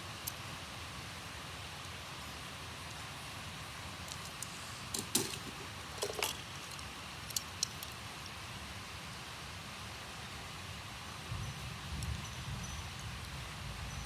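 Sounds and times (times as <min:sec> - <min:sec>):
steady background hiss: 0:00.0 - 0:14.0
toy cars clicking and tapping: 0:04.1 - 0:08.0.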